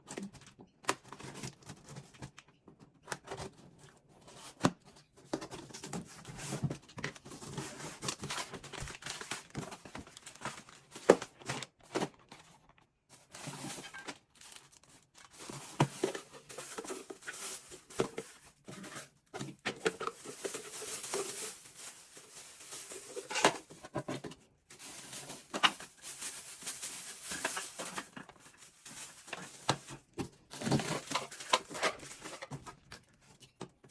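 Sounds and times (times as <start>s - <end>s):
wrapping crinkling: 7.0s - 11.6s, 13.2s - 24.0s, 24.7s - 32.9s.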